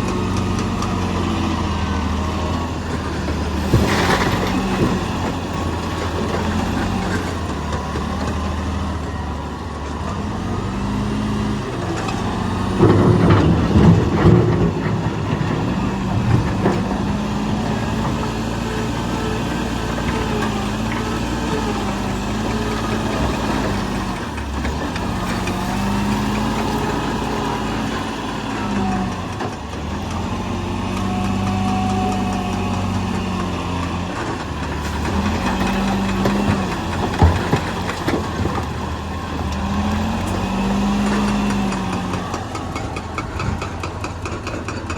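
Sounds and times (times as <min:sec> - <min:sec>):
heavy machinery engine running: 0:00.0 - 0:44.9
clattering and banging: 0:30.9 - 0:44.9.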